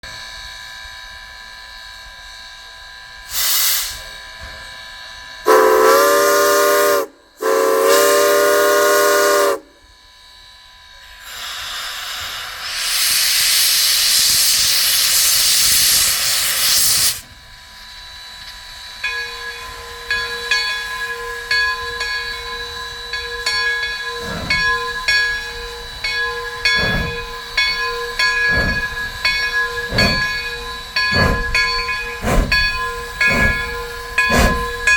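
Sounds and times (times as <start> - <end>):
steam locomotive exhaust chuffs: 0.0 - 34.9
loud hiss of steam: 2.7 - 34.9
steam whistle blasts: 3.2 - 4.5, 5.3 - 10.0, 11.2 - 17.3
locomotive bell ringing: 18.6 - 34.9.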